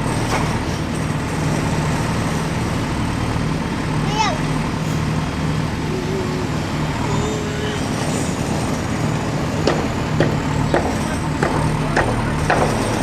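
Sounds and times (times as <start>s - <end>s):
heavy machinery engine running: 0.0s - 13.0s
sharp knocks: 9.6s - 13.0s.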